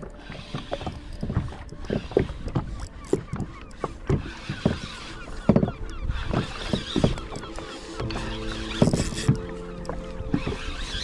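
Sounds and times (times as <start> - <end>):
fishing gear clicking and knocking: 0.0 - 11.0.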